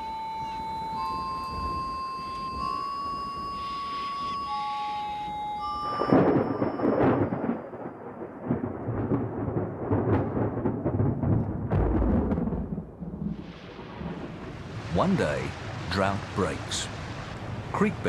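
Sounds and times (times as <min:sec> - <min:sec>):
sustained music tones: 0:00.0 - 0:07.3
rolling thunder: 0:05.8 - 0:17.8.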